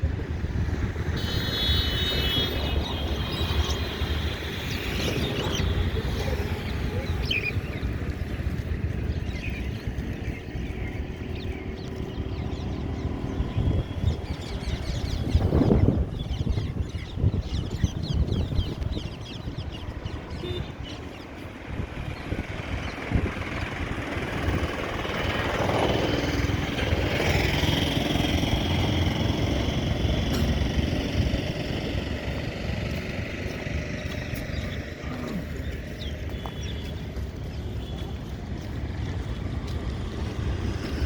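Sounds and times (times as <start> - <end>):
road traffic: 0.0 - 41.0
wind buffeting microphone: 0.0 - 41.0
vehicle passing close by: 21.6 - 37.5.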